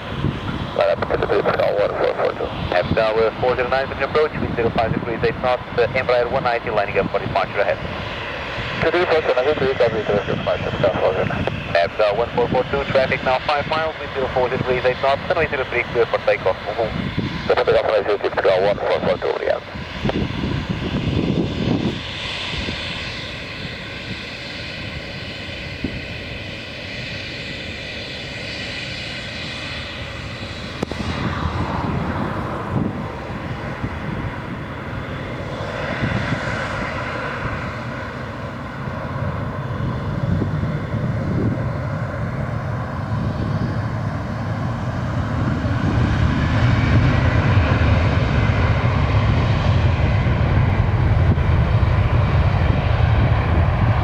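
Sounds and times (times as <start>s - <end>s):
jet engines roaring with high whine: 0.0s - 54.0s.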